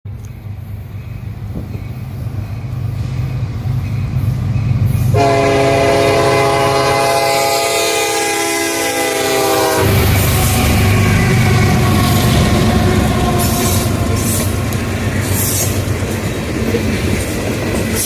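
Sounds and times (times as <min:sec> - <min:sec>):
locomotive engine rumbling: 0:00.1 - 0:18.0
locomotive air horn blast: 0:05.1 - 0:14.5.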